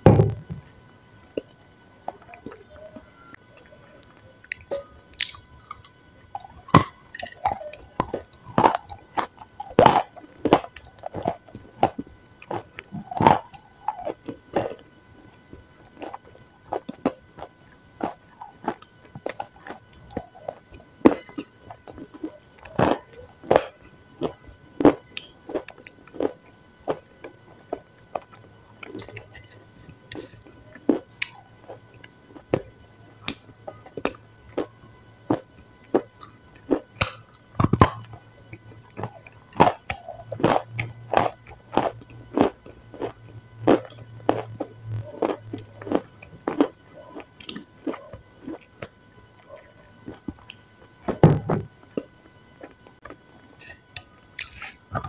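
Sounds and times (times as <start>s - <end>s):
person chewing and crunching: 1.3s - 55.0s.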